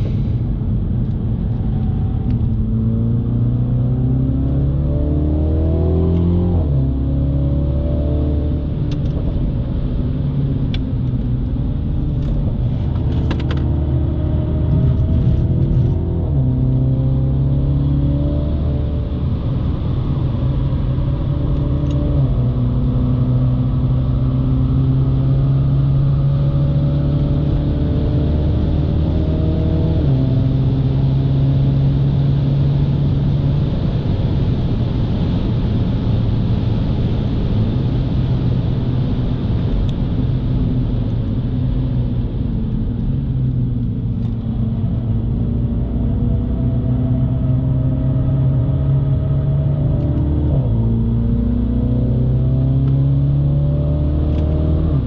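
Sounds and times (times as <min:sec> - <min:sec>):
tyre and road noise: 0:00.0 - 0:24.7
car engine accelerating: 0:00.0 - 0:55.0.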